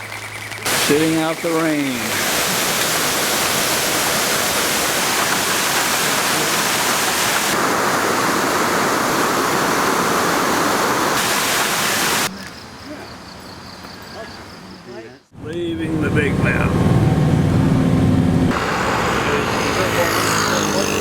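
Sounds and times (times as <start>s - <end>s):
heavy rain pouring: 0.7s - 12.3s.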